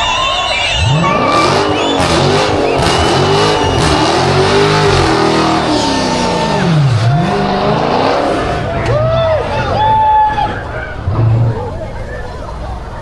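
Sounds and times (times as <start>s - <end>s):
car engine revving hard: 0.7s - 9.1s.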